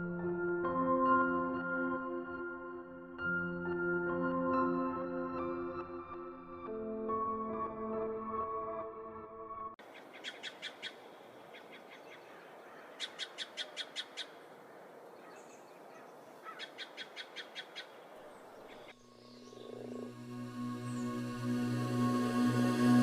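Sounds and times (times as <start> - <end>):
soft ambient music: 0.0 - 9.8, 18.9 - 23.0
soft outdoor hiss: 9.8 - 23.0.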